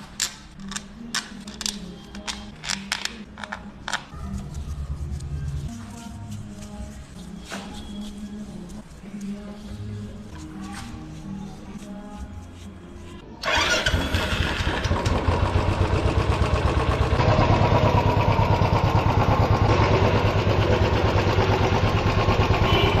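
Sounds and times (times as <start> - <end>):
motorcycle engine starting and running: 13.4 - 23.0.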